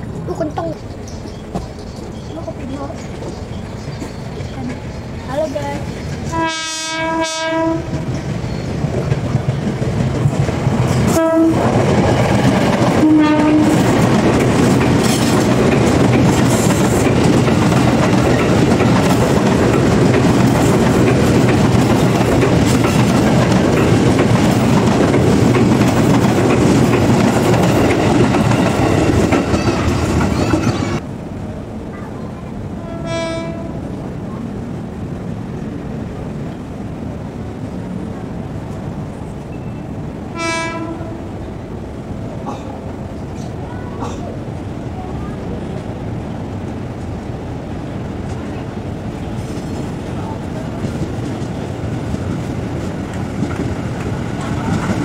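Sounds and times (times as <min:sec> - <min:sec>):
train wheels rumbling on rails: 0:00.0 - 0:55.0
electric train horn: 0:06.3 - 0:08.0, 0:11.1 - 0:11.7, 0:12.9 - 0:13.9, 0:32.8 - 0:33.9, 0:40.3 - 0:41.3.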